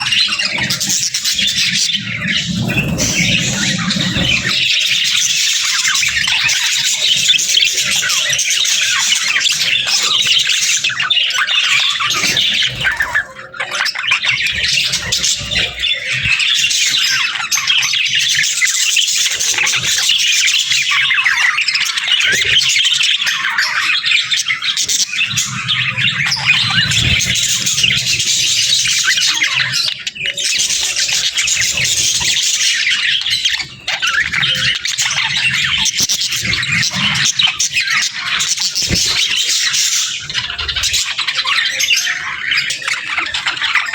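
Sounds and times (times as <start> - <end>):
budgerigars chattering: 0.0 - 43.9.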